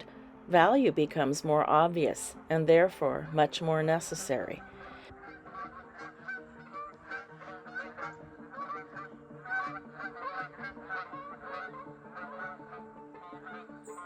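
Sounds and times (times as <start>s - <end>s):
geese honking: 3.0s - 14.0s.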